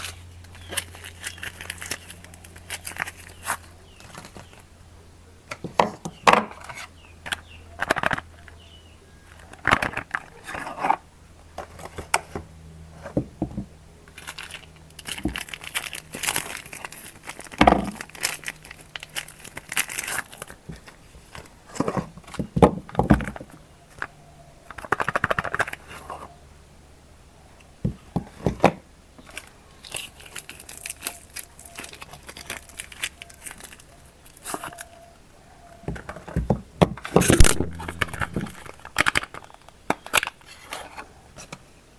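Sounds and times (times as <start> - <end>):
packaging crumpling and tearing: 0.0 - 4.5, 14.2 - 21.0, 29.3 - 35.0.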